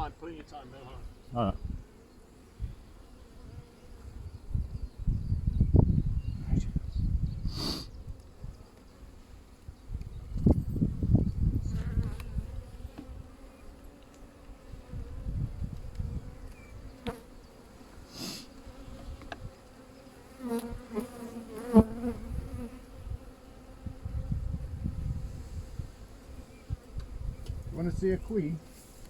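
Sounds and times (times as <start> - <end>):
short hiss: 7.5 - 7.9, 18.1 - 18.5
honeybees humming: 11.1 - 28.8.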